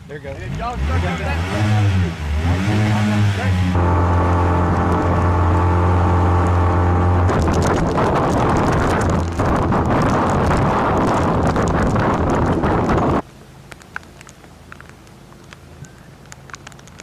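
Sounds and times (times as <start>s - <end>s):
wind buffeting microphone: 3.8s - 13.2s.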